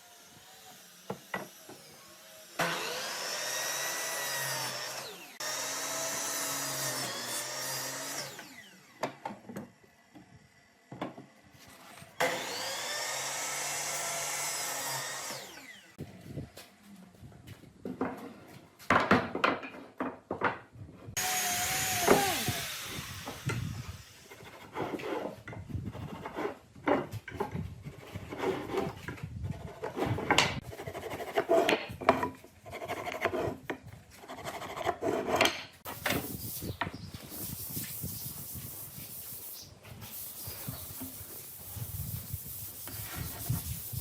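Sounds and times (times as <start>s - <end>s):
wood rubbed and scraped by hand: 21.4s - 44.0s.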